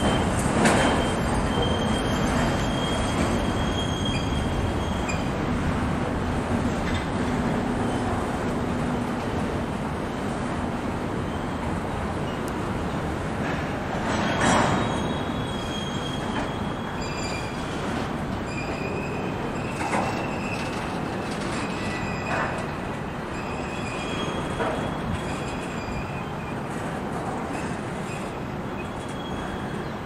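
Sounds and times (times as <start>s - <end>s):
high wheel squeal: 0.0s - 5.6s, 14.0s - 26.9s, 27.5s - 30.0s
train cars rumbling past: 0.0s - 30.0s.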